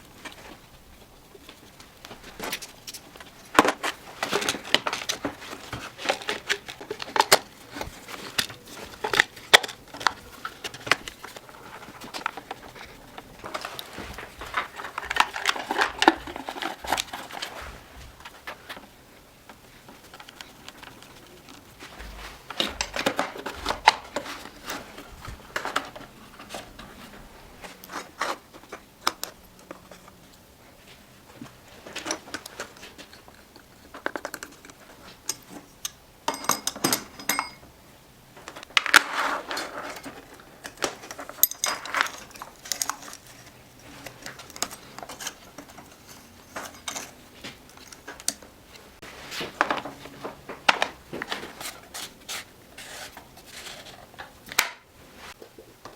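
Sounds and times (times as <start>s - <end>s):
clinks of small parts and tools: 31.8s - 37.7s, 39.6s - 48.4s.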